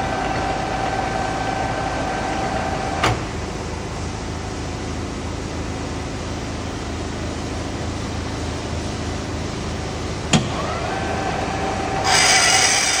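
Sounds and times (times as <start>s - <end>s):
metal lathe running: 10.3s - 13.0s.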